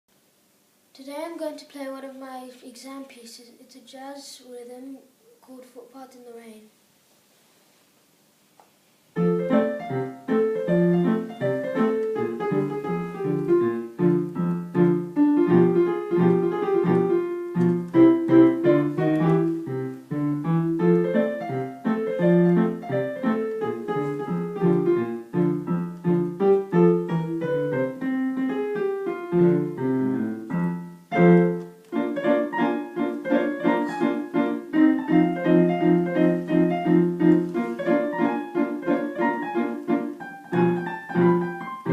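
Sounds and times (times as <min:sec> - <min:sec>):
jazz swing piano piece: 0:09.1 - 0:41.9.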